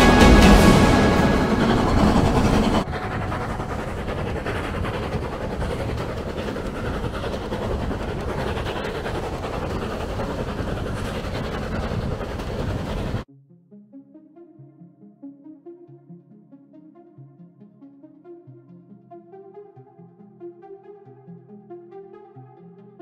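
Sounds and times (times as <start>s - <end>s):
background music: 0.0s - 5.3s, 13.3s - 23.0s
train coaches rumbling on track: 0.0s - 13.2s.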